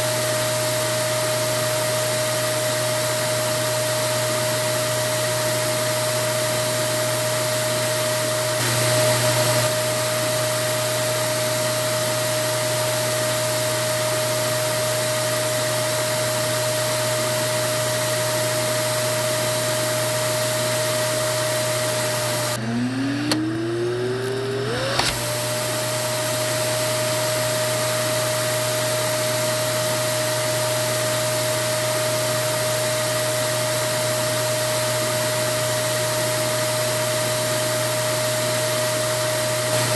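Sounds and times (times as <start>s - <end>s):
vacuum cleaner running: 0.0s - 39.9s
vacuum switch clicks: 22.3s - 25.6s.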